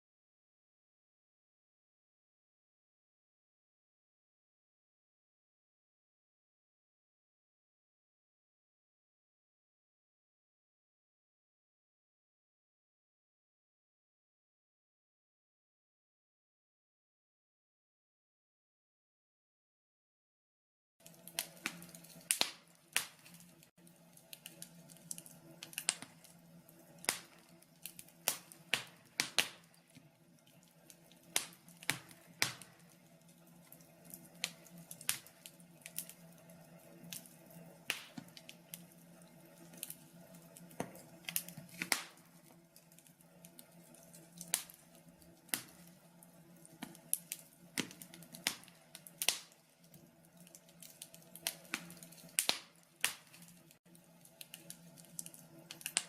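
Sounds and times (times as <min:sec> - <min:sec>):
logs crackling and popping: 0:21.0 - 0:56.0.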